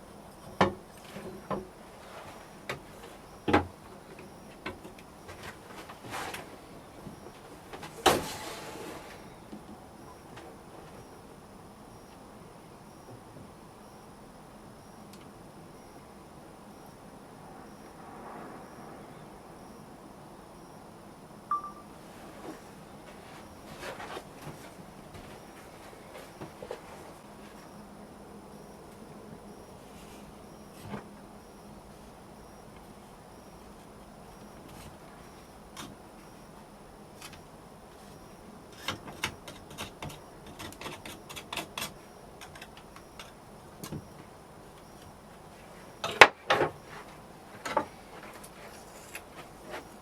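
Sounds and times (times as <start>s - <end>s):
faint steady hiss: 0.0s - 50.0s
rustling hiss: 5.3s - 9.5s
sharp ringing ping: 21.5s - 21.9s.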